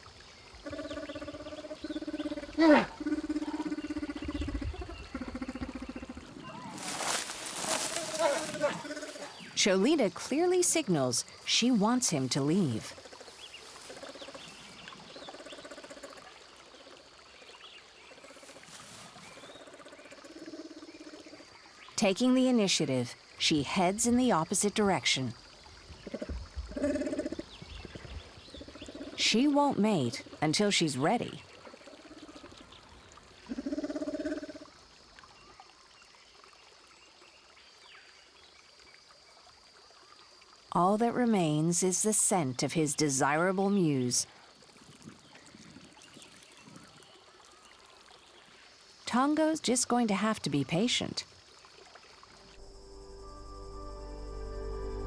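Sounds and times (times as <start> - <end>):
stream trickling: 0.0 - 55.0
bear chirping growl: 0.6 - 6.7, 8.0 - 9.5.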